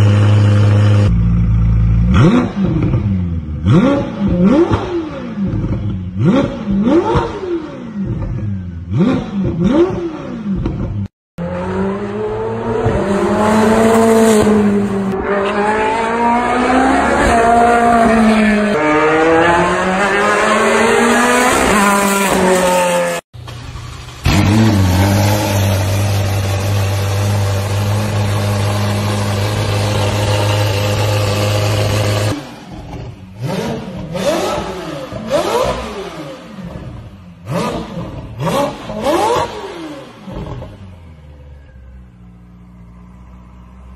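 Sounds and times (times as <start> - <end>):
race car engine revving: 2.0 - 41.1
car engine idling: 23.4 - 31.4.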